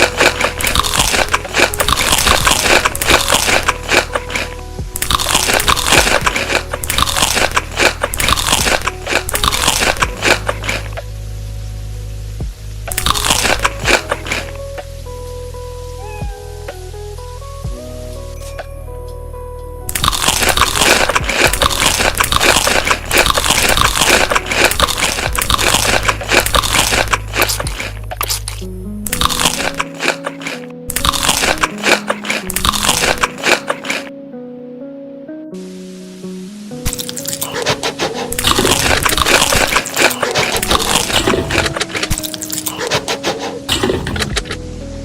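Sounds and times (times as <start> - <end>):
crunching crisp food being chewed: 0.0 - 11.0, 12.9 - 14.6, 19.9 - 34.1, 36.9 - 44.6.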